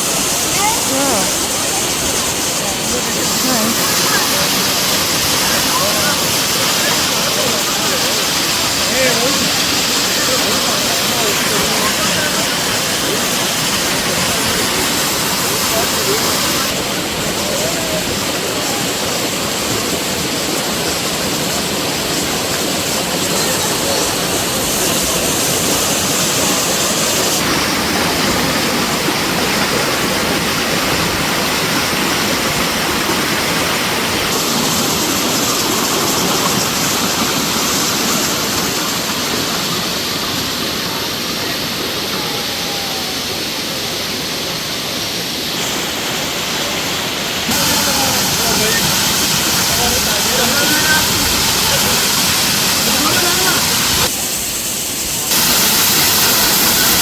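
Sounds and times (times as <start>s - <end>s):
waterfall crashing onto rocks: 0.0s - 57.0s.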